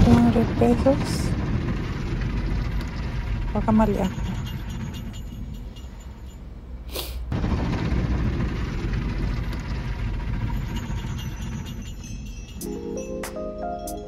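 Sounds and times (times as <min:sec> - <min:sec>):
short hiss: 0:06.9 - 0:07.3.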